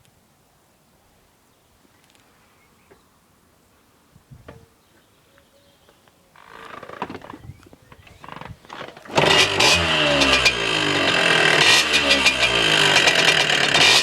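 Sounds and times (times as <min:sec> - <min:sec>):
starter clicks: 0:06.4 - 0:14.0
dirt bike engine revving: 0:08.0 - 0:14.0.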